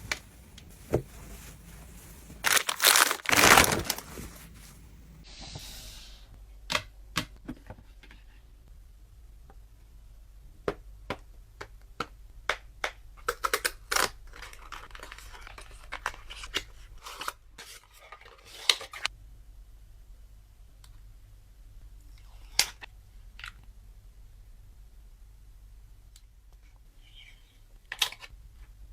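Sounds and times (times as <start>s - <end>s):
packaging crinkling and rustling: 0.0s - 5.2s.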